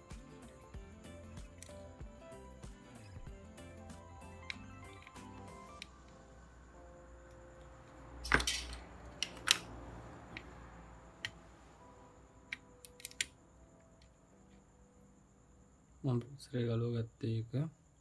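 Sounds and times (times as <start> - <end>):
tools and parts clicking: 8.2 - 9.7, 12.5 - 13.3.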